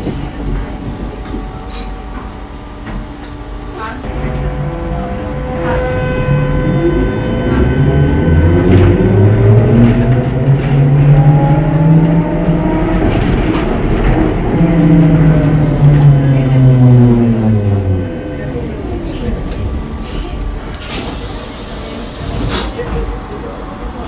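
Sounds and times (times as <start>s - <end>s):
low running hum: 2.0s - 9.8s.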